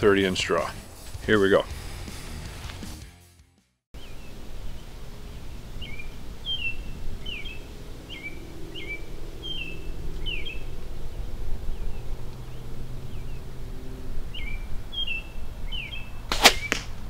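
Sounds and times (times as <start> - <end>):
low outdoor rumble: 4.0 - 17.0
songbird chirping: 4.0 - 17.0.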